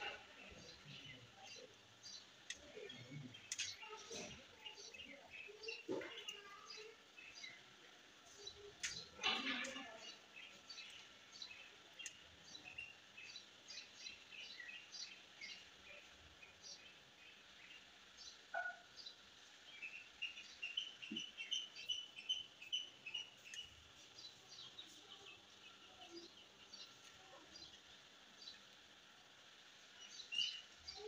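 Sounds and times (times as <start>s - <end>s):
faint rapid bird chirping: 0.0s - 31.0s.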